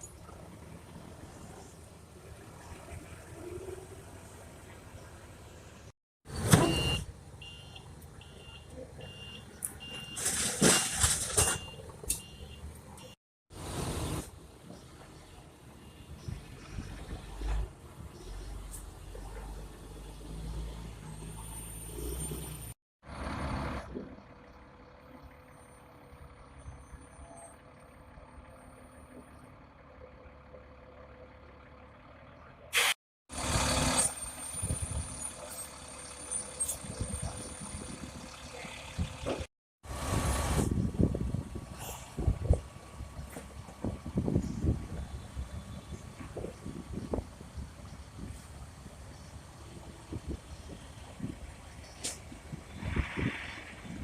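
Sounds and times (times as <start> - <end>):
vehicle and machinery noise: 0.0 - 54.0
reversing alarm beeping: 6.6 - 10.2.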